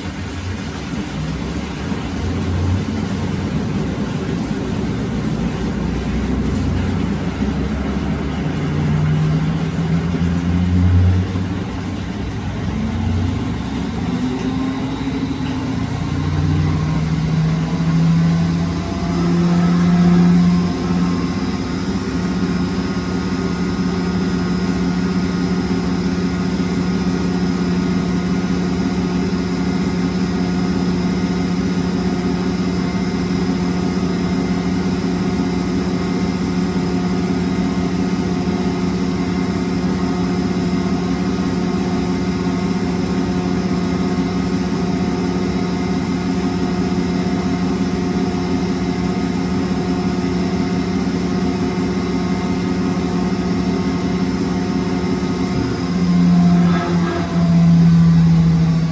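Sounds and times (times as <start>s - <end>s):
washing machine motor hum: 0.0s - 58.9s
faint high whine: 13.6s - 24.1s, 55.2s - 58.9s.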